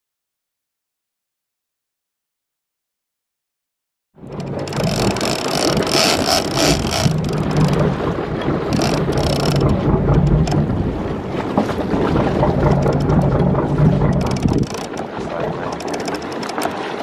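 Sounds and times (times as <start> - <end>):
boat engine running: 4.2 - 17.0
water rushing past hull: 4.2 - 17.0
wind buffeting microphone: 4.2 - 17.0.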